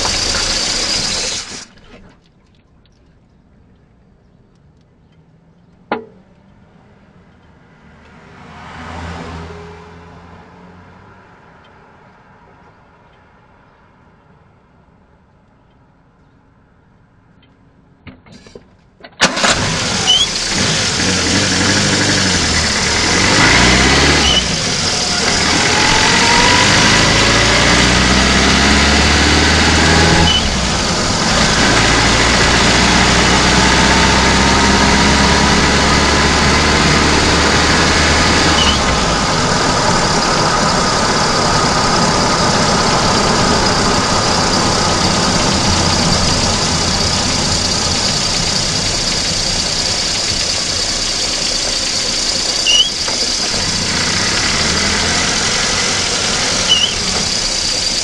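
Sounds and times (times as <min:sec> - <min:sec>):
car engine revving: 0:00.0 - 0:01.7, 0:19.2 - 0:58.0.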